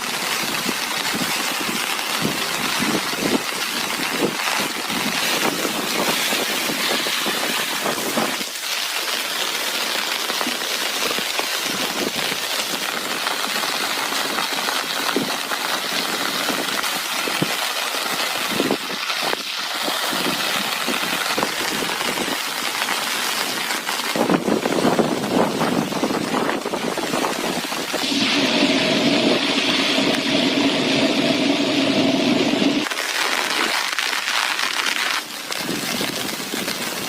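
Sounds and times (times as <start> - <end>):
heavy rain falling: 0.0 - 37.0
sharp drop impacts: 24.2 - 34.4.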